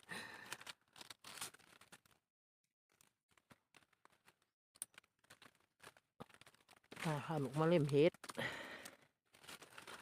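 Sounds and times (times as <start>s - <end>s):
faint clicks and rustles: 2.9s - 10.0s.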